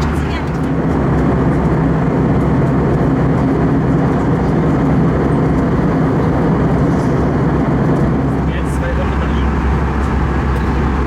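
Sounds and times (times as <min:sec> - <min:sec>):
aircraft cabin engine and airflow rush: 0:00.0 - 0:11.0
low steady hum: 0:08.4 - 0:11.0.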